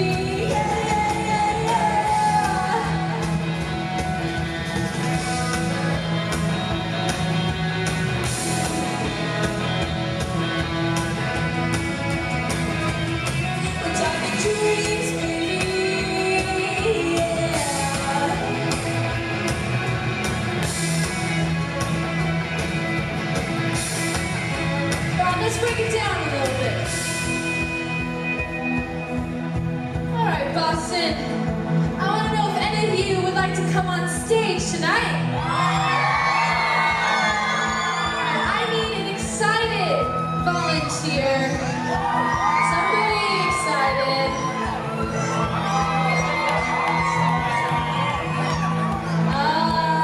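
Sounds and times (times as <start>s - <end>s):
live pop-rock band playing: 0.0s - 50.0s.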